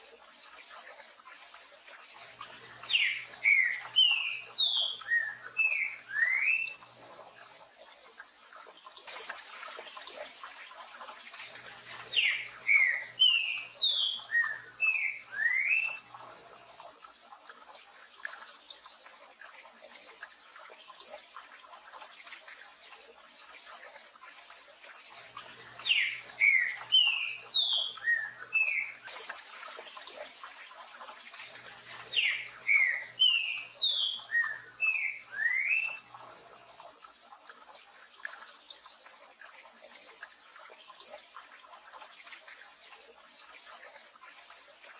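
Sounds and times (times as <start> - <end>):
bird singing whistled notes: 2.9 - 6.8, 12.2 - 16.0, 25.8 - 29.0, 32.1 - 36.0.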